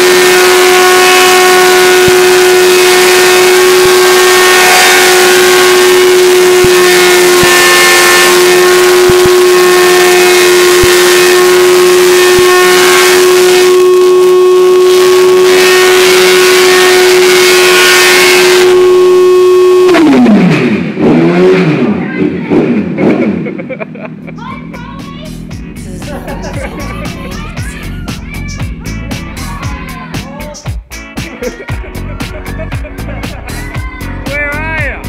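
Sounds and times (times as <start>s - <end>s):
motorcycle engine at high revs: 0.0s - 23.8s.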